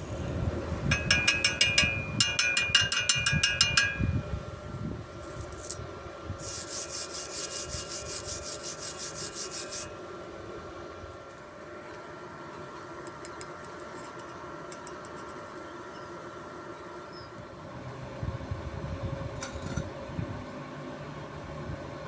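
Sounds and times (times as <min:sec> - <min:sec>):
hand tool scraping steel: 0:05.2 - 0:05.8, 0:06.4 - 0:10.0.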